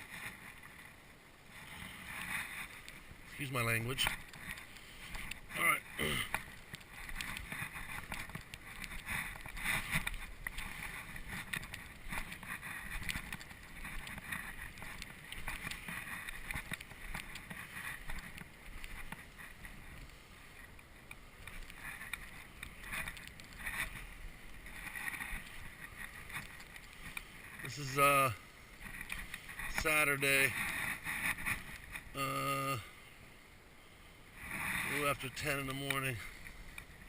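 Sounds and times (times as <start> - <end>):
footsteps crunching in snow: 1.4 - 20.6.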